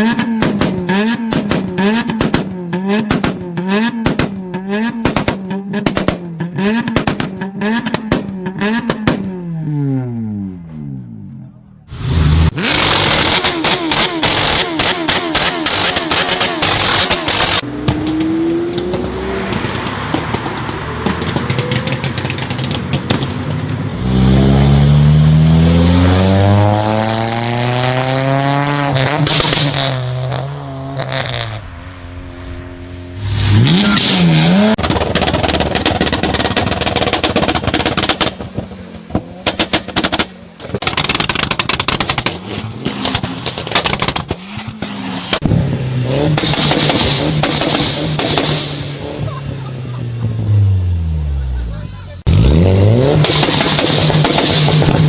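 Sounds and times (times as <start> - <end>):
exhaust pops and bangs: 0.0 - 9.4, 12.6 - 24.0, 33.8 - 49.0, 53.1 - 55.0
car engine revving: 0.0 - 55.0.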